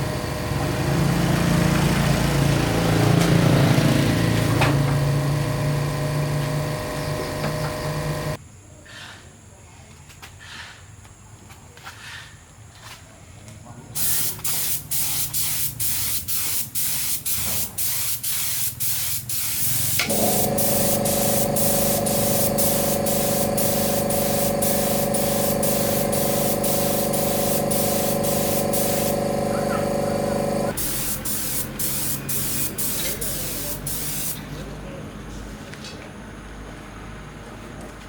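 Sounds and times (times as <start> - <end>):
motor running: 0.0 - 8.4, 19.6 - 34.4
pressurised spray hissing: 4.0 - 8.4, 14.0 - 34.4.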